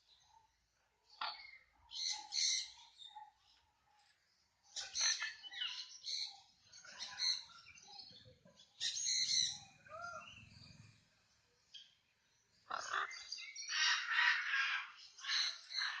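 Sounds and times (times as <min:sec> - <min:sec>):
parrots squawking and chattering: 0:01.1 - 0:03.1, 0:04.8 - 0:07.8, 0:08.8 - 0:11.0, 0:12.6 - 0:16.0.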